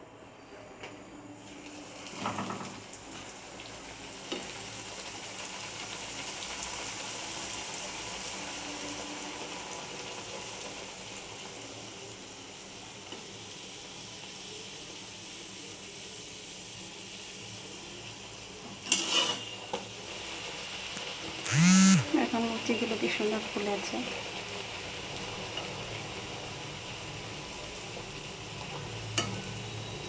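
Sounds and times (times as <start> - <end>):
bread sizzling in hot oil: 1.4 - 21.4, 22.1 - 30.0.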